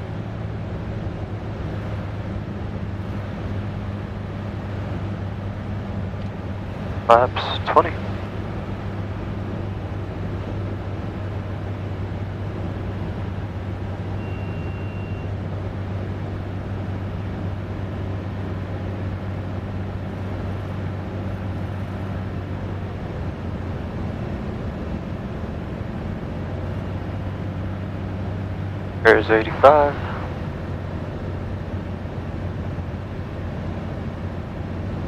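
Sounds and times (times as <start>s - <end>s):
propeller plane engine droning: 0.0s - 35.0s
thin high beep: 14.2s - 15.3s.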